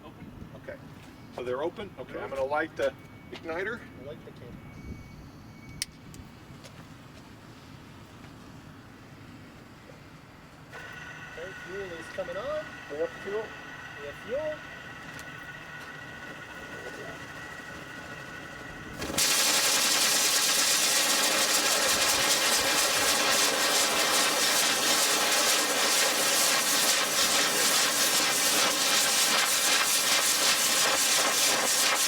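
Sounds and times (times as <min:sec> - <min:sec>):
engine whir with steady tones: 0:02.9 - 0:32.0
rocket engine rushing hiss: 0:18.9 - 0:32.0.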